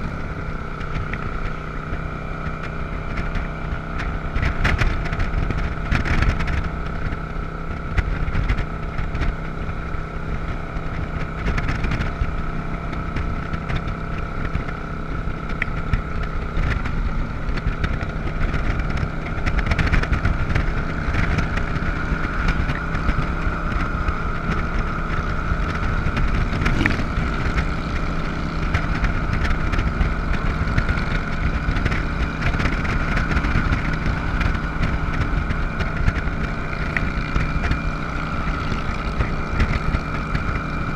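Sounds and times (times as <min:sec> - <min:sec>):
motorcycle engine running: 0:00.0 - 0:40.9
dense rushing noise: 0:16.0 - 0:40.9.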